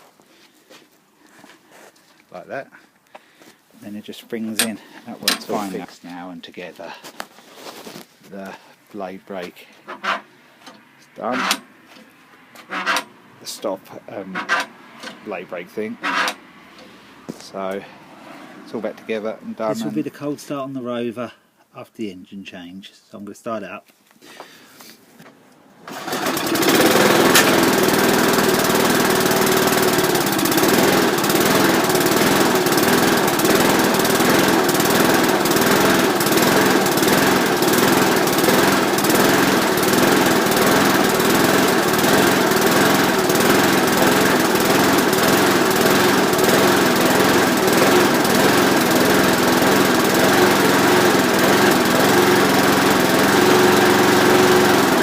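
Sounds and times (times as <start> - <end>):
lawn mower engine starting: 4.4 - 5.8, 9.8 - 18.6, 25.8 - 55.0.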